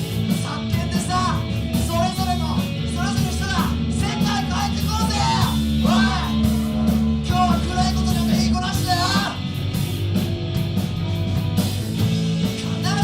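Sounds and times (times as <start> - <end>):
bass guitar: 0.0 - 13.0
drums: 0.0 - 13.0
electric guitars: 0.0 - 13.0
lead vocal singing: 3.1 - 9.4, 12.4 - 13.0.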